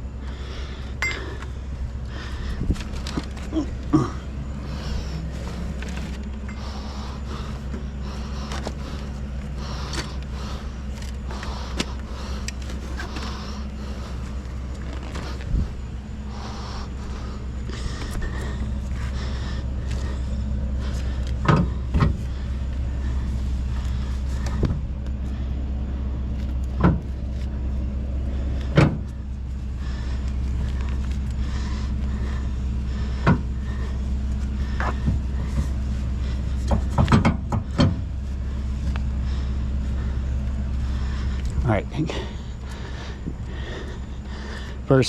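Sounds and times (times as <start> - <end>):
truck engine idling: 0.0 - 45.0
sharp knocks and clanks: 36.6 - 38.1.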